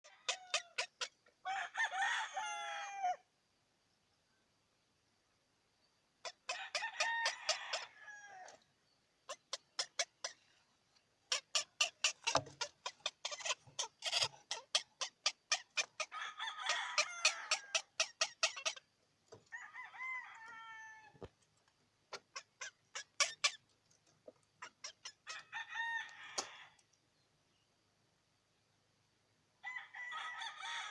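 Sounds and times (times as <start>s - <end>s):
chicken clucking: 0.0s - 1.4s, 6.2s - 8.6s, 9.3s - 10.6s, 11.3s - 26.8s
chicken drawn-out calls: 0.0s - 3.2s, 6.2s - 8.6s, 9.3s - 10.6s, 11.2s - 21.3s, 24.5s - 26.8s.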